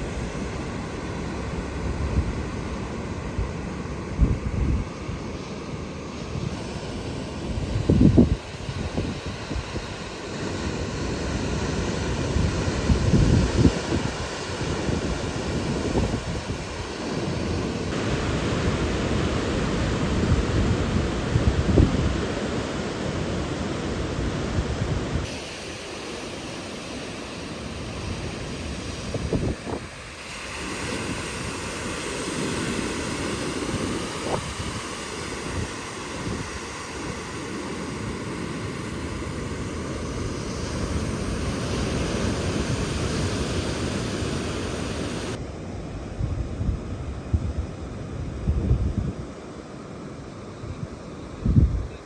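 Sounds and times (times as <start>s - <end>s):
sea surf: 0.0s - 52.0s
wind buffeting microphone: 1.3s - 5.3s, 6.1s - 10.0s, 11.2s - 17.0s, 17.9s - 22.5s, 27.8s - 38.1s, 46.1s - 49.4s, 50.7s - 52.0s.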